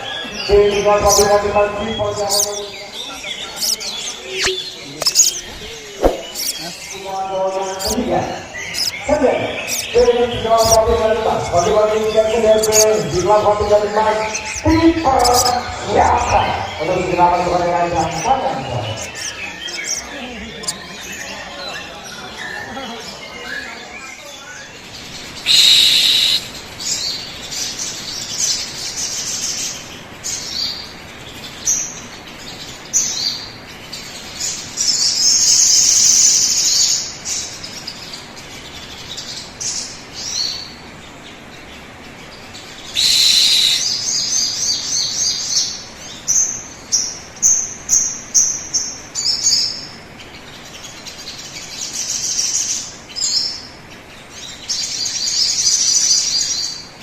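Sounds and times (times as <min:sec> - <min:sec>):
bird chirping and whistling: 0:03.6 - 0:06.7, 0:25.4 - 0:26.5, 0:42.9 - 0:44.2.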